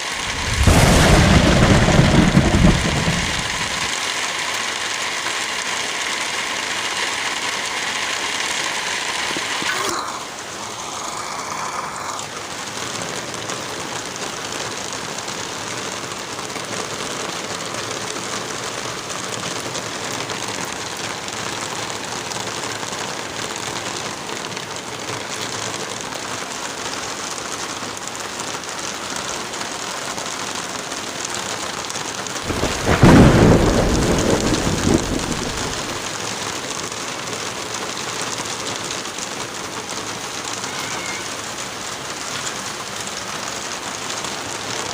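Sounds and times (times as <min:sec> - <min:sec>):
deep thunder clap: 0:00.0 - 0:03.9, 0:32.4 - 0:36.1
heavy rain: 0:00.0 - 0:44.9.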